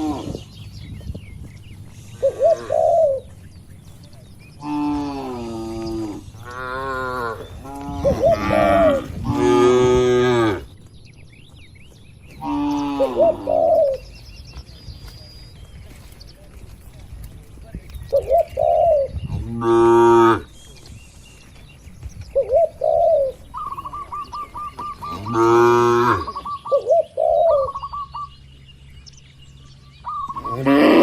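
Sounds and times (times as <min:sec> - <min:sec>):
pigeons cooing: 0:00.0 - 0:00.6, 0:01.8 - 0:10.8, 0:12.3 - 0:14.2, 0:18.1 - 0:20.5, 0:22.3 - 0:28.4, 0:30.0 - 0:31.0
small birds chirping: 0:00.0 - 0:31.0
cattle mooing: 0:04.6 - 0:10.7, 0:25.1 - 0:26.4, 0:30.4 - 0:31.0.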